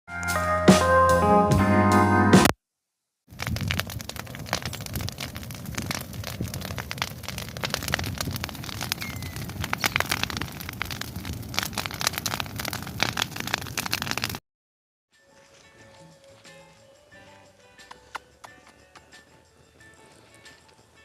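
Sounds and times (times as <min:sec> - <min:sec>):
bonfire crackling and popping: 0:03.3 - 0:14.4.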